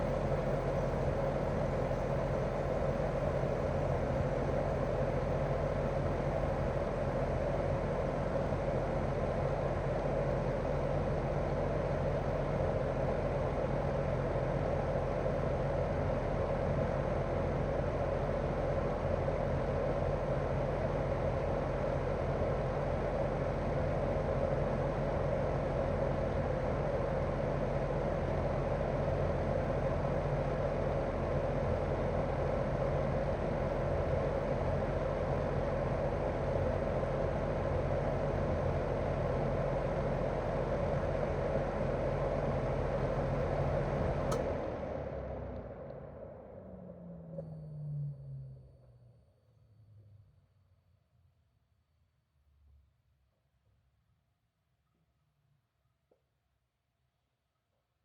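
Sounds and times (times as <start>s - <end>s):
air conditioner outdoor unit humming: 21.7s - 46.5s.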